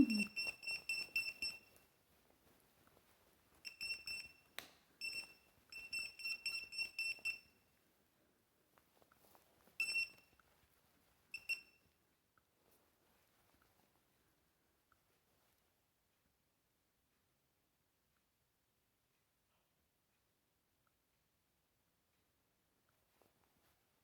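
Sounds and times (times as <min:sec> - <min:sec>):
electronic device beeping: 0:00.0 - 0:00.5.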